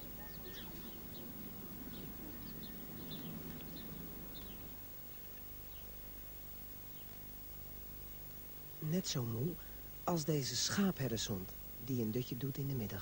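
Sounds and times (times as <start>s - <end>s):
small birds chirping: 0.0s - 10.0s
low steady hum: 0.0s - 13.0s.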